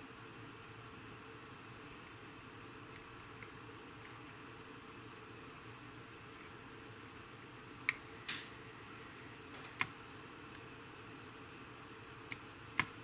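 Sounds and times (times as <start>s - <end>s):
faint steady background noise: 0.0s - 13.0s.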